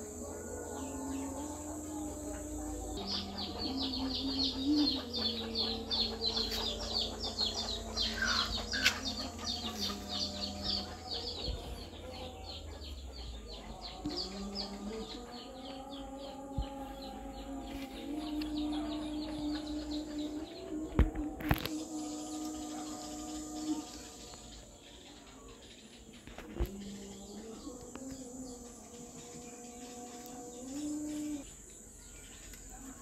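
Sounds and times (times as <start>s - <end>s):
held low notes: 0.0s - 24.7s
bird chirping: 0.0s - 33.0s.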